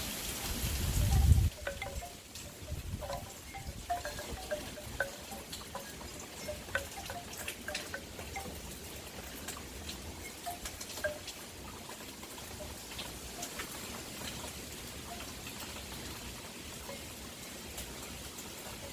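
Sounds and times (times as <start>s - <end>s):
low rumble of wind: 0.0s - 18.9s
wind chimes tinkling: 0.5s - 18.9s.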